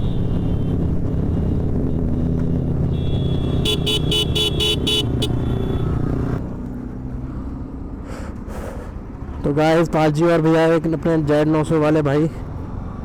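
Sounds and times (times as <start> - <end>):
road traffic: 0.0 - 13.0
vehicle horn beeping: 2.9 - 6.0.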